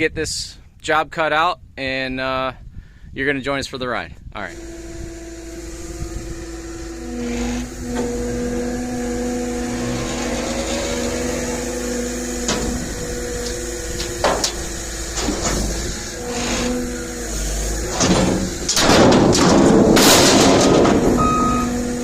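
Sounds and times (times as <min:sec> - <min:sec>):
machine humming: 0:04.5 - 0:22.0
sharp metallic knocks: 0:09.5 - 0:16.8, 0:17.8 - 0:21.8.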